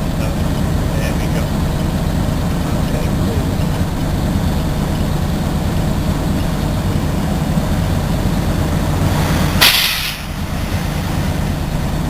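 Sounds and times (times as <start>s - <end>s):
diesel truck engine running: 0.0s - 12.0s
burst of hiss: 9.6s - 10.8s.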